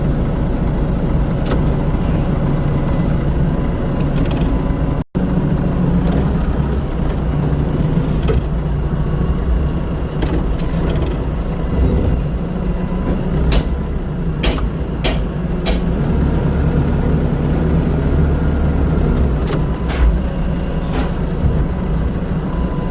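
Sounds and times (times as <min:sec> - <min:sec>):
vehicle engine rumbling: 0:00.0 - 0:22.9.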